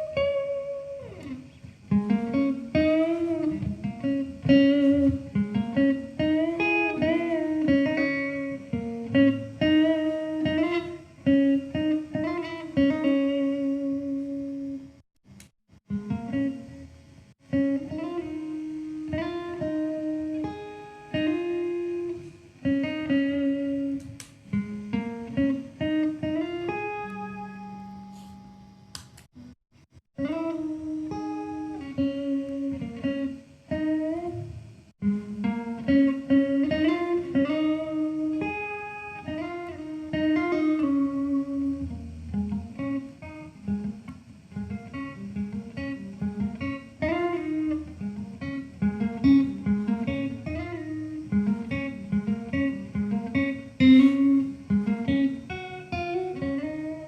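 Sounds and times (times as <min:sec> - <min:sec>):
plucked string instrument melody: 0:43.8 - 0:57.0.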